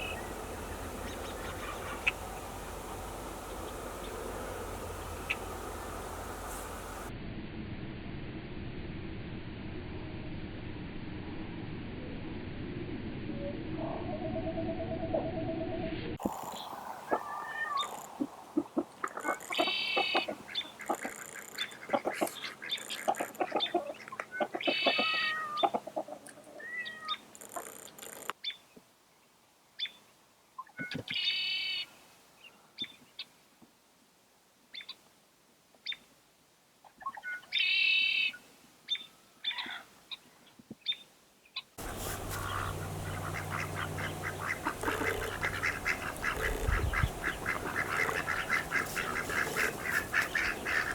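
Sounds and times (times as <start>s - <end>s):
birds calling: 0.0s - 7.1s, 16.2s - 28.2s, 41.8s - 50.9s
low steady hum: 0.0s - 15.0s, 41.8s - 50.9s.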